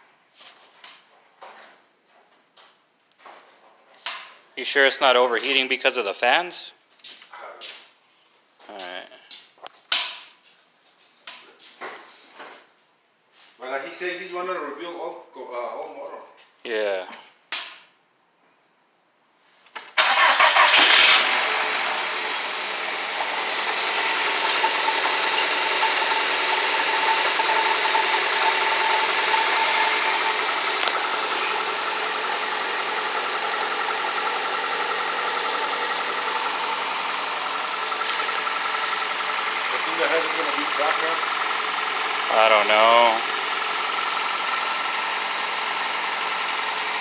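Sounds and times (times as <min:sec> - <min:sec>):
car engine idling: 0:20.0 - 0:47.0
car engine starting: 0:20.0 - 0:47.0.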